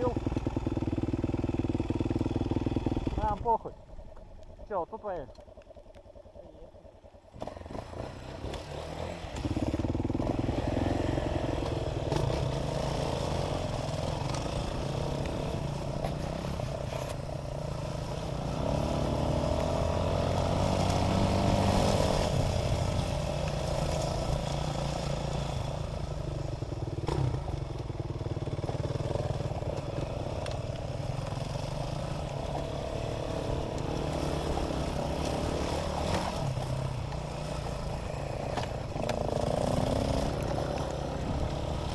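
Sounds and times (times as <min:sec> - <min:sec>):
dirt bike engine revving: 0:00.0 - 0:03.7, 0:07.3 - 0:16.8, 0:17.6 - 0:25.8, 0:31.1 - 0:41.9.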